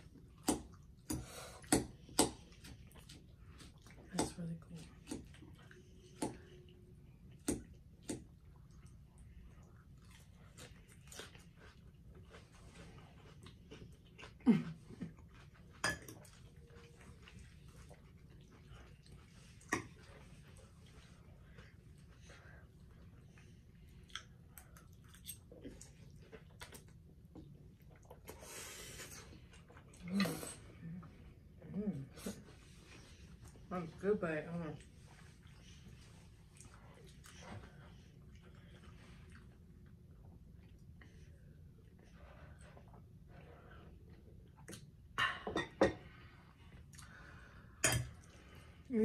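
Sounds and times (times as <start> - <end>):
mouths chewing and smacking: 0.0 - 28.4
faint low hum: 0.0 - 49.0
lip smacks and mouth clicks: 44.6 - 44.9.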